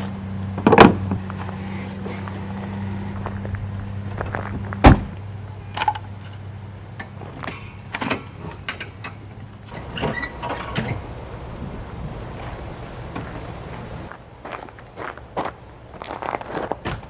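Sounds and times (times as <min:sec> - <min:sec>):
engine hum: 0:00.0 - 0:17.0
vehicle door shutting: 0:00.5 - 0:06.0, 0:07.1 - 0:13.8.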